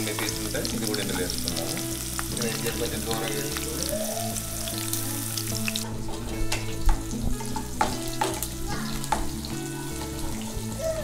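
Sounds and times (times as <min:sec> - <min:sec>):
food sizzling in hot oil: 0:00.0 - 0:11.0
wooden spatula knocking pan: 0:06.1 - 0:09.4.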